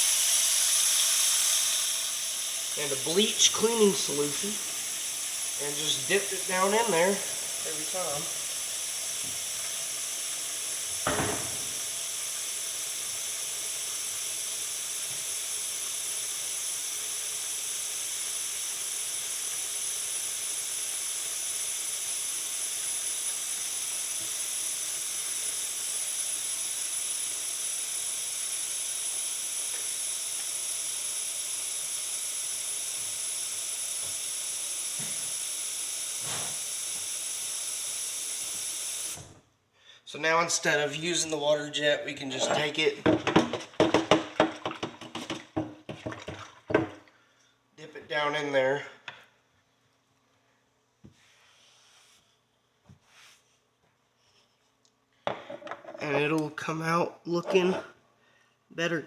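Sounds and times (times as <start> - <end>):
tap water running into sink: 0.0 - 39.4, 42.4 - 47.2.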